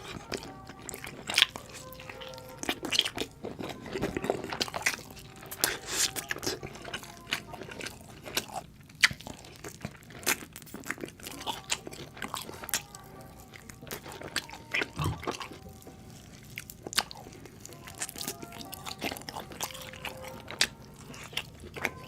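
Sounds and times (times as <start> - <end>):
crunchy bites and chewing: 0.0 - 22.0.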